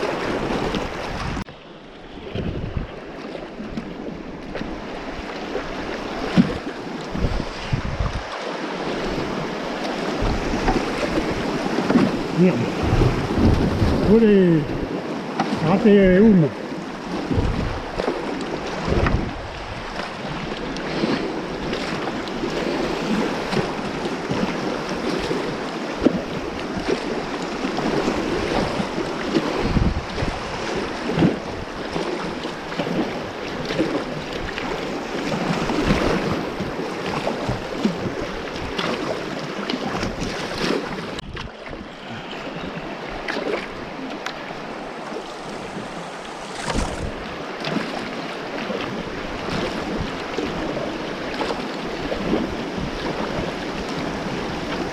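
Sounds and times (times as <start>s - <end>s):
wind bumps on microphone: 0.0s - 1.5s, 2.2s - 3.1s, 6.2s - 9.5s, 10.1s - 15.0s, 17.1s - 24.5s, 27.8s - 32.3s, 44.4s - 47.9s
water splashes: 0.0s - 54.9s
whitewater rushing: 5.6s - 54.9s.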